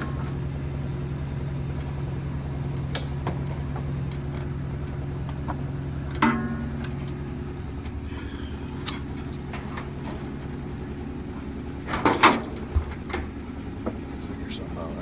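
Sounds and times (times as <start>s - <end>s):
steady low hum: 0.0s - 15.0s
clicks and knocks on dryer panels: 11.8s - 14.0s.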